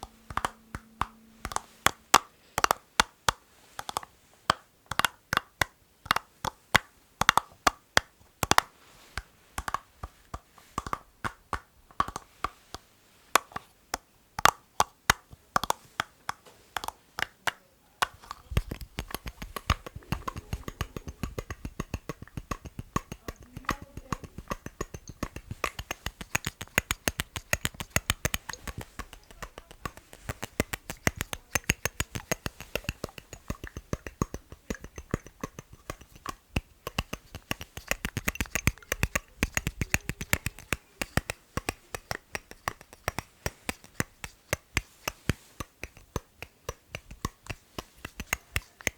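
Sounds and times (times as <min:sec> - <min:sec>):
tapping on hard objects: 0:00.0 - 0:04.0, 0:14.4 - 0:48.9.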